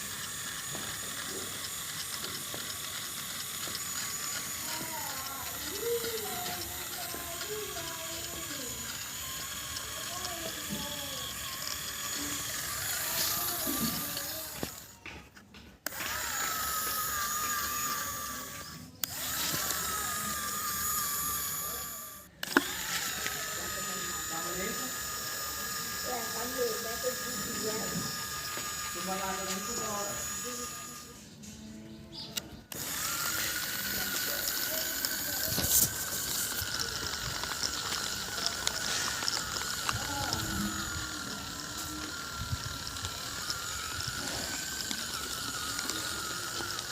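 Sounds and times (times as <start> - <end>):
gears rattling: 0.0 - 31.6, 32.4 - 46.9
small electric motors whining: 0.0 - 46.9
motor switch click: 15.8 - 31.2, 32.2 - 46.9.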